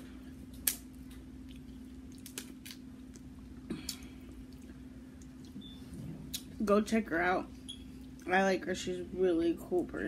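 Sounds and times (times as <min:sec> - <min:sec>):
wet chewing clicks and smacks: 0:00.5 - 0:06.6.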